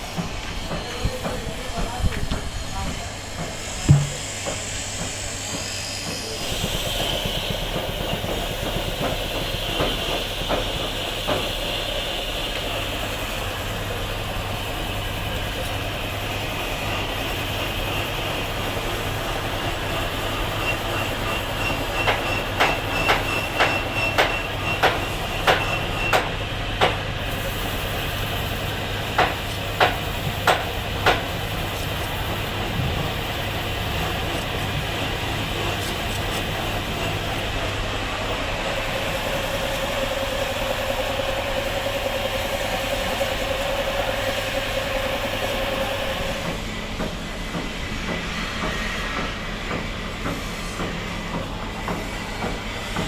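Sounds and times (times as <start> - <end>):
machine electric hum: 0.0 - 24.7, 26.6 - 53.0
sharp knocks: 3.4 - 5.7.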